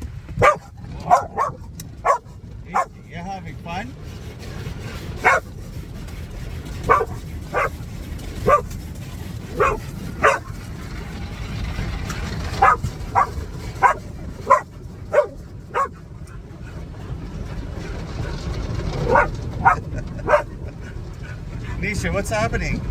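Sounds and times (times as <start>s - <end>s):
low rumble: 0.0s - 22.9s
dog barking: 0.4s - 3.0s, 5.2s - 5.5s, 6.7s - 8.8s, 9.4s - 10.6s, 12.5s - 16.0s, 19.0s - 20.6s.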